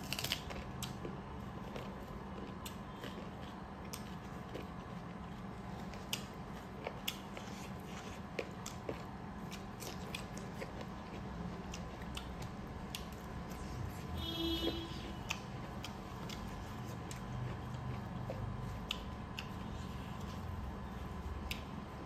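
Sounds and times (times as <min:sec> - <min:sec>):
people chewing: 0:00.0 - 0:14.2, 0:14.9 - 0:22.0
mouth clicks and smacks: 0:18.3 - 0:19.6.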